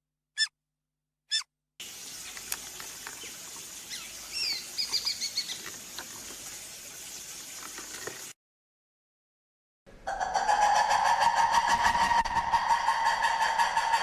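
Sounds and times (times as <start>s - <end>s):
outdoor hiss: 1.8s - 8.3s
small bird chirping: 2.0s - 6.0s
small ticks: 2.2s - 3.8s.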